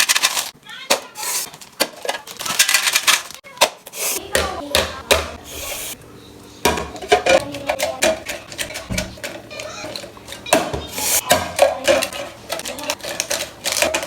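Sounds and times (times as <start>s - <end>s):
snack packets crinkling: 0.0s - 3.5s, 12.1s - 14.0s
plastic containers clattering: 0.0s - 6.0s, 6.6s - 14.0s.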